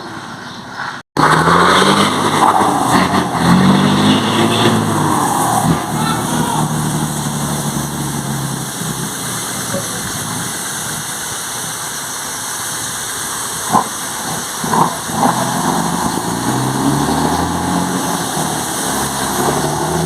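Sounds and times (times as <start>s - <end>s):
turbocharger whistling: 1.2s - 10.2s
truck diesel engine idling: 4.8s - 14.6s.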